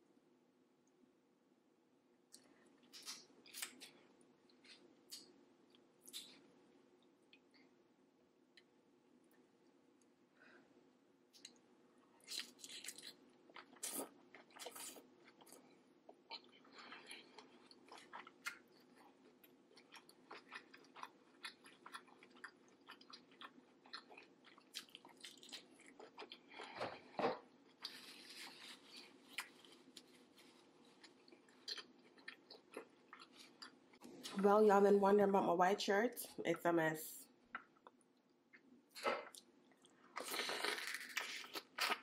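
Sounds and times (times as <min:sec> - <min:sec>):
chewing and crunching food: 0:11.3 - 0:34.4, 0:37.5 - 0:42.0.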